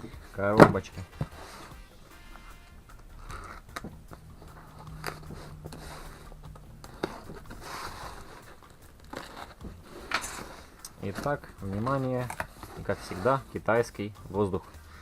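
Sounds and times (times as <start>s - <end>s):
plastic packing crinkling: 3.2s - 13.4s
cardboard box being opened: 3.3s - 13.4s.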